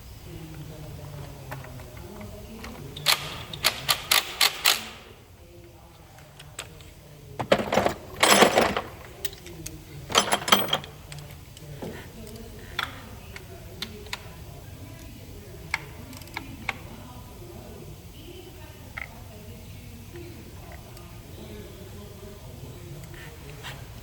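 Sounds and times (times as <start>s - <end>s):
metal tools clinking: 7.4s - 11.4s.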